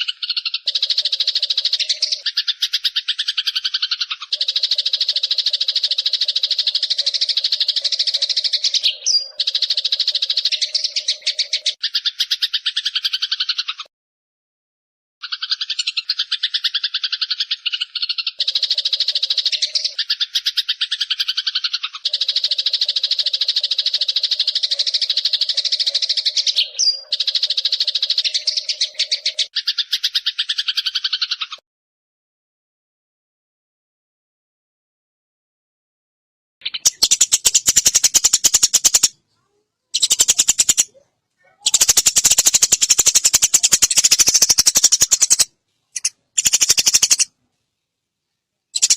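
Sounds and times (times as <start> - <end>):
bird buzzy chattering trill: 0.0 - 13.9, 15.2 - 31.6, 36.6 - 47.3
songbird buzzy trill: 36.6 - 39.1, 39.9 - 40.9, 41.6 - 47.3.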